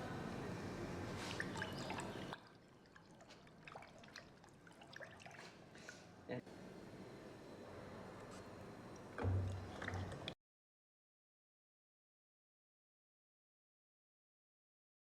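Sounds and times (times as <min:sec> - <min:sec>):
liquid dripping and trickling: 0:01.2 - 0:06.0, 0:09.2 - 0:10.4.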